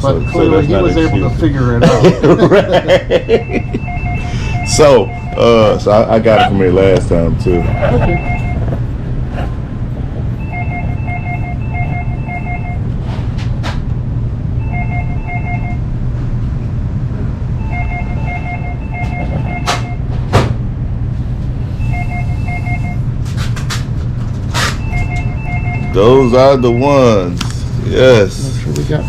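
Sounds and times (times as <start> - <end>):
two-pitch electronic beeps: 0.0 - 1.7, 3.2 - 5.8, 7.4 - 8.6, 10.4 - 12.8, 14.6 - 15.8, 17.6 - 20.0, 21.8 - 23.0, 24.8 - 27.2
low hum: 0.0 - 29.0.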